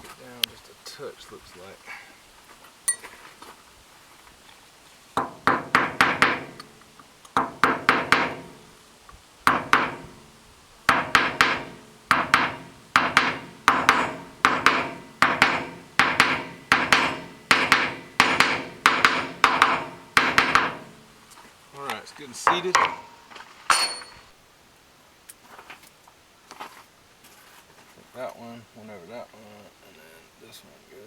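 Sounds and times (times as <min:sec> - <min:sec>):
hammer tapping on metal: 0:05.2 - 0:08.7, 0:09.5 - 0:10.3, 0:10.9 - 0:21.1, 0:22.4 - 0:24.2.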